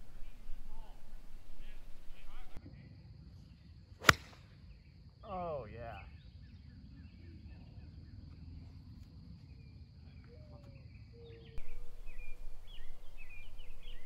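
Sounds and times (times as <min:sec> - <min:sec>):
loud steady hiss: 0:00.0 - 0:02.6
low background rumble: 0:00.0 - 0:02.6
songbirds chirping: 0:00.0 - 0:14.0.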